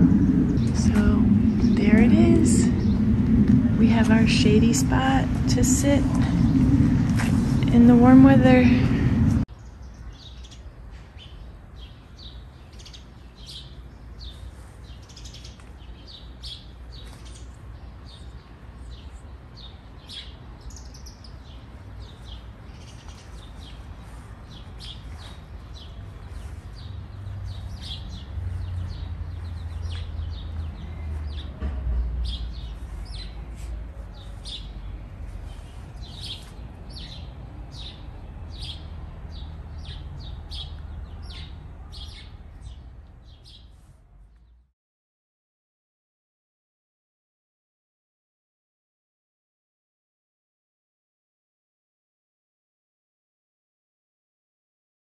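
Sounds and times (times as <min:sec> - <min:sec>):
low rumble: 0:00.0 - 0:09.5
small birds chirping: 0:00.1 - 0:44.6.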